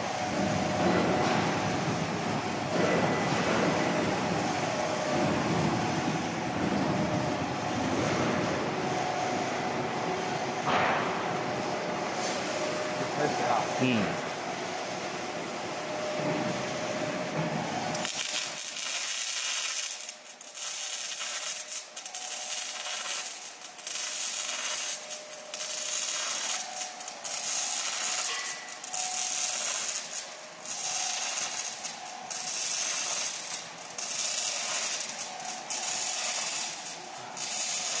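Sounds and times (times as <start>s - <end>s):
welding arc crackling and hissing: 17.9s - 38.0s.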